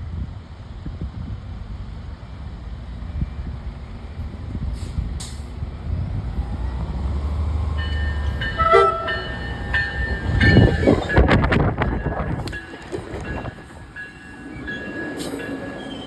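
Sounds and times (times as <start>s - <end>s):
train rumbling past: 0.0s - 16.0s
wind buffeting: 0.0s - 16.0s
train horn blasts: 8.2s - 9.7s.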